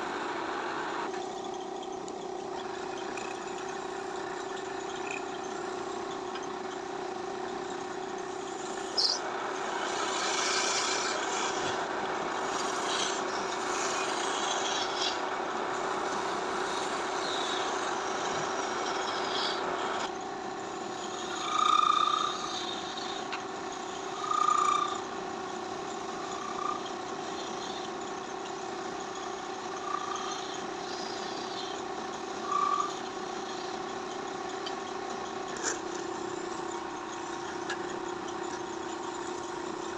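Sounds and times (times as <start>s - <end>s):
motor humming: 0.0s - 39.9s
rough rasping noise: 8.2s - 20.1s.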